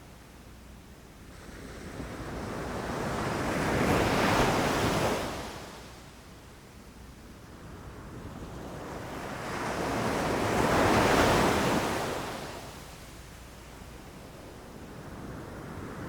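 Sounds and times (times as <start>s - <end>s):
ocean waves breaking on beach: 8.0s - 12.8s.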